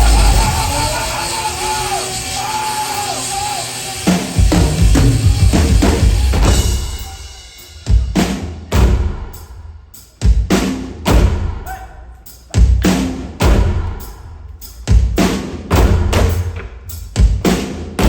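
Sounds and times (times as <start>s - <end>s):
loud dense drumming: 0.0s - 18.0s
heavy low drum hits: 10.3s - 11.7s, 12.6s - 14.1s, 14.9s - 16.6s.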